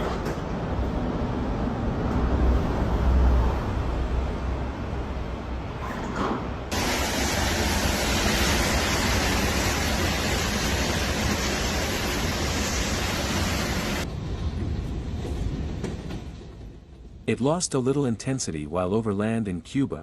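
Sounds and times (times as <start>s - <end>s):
bright hiss: 6.7s - 14.0s
heavy rain: 6.7s - 14.1s.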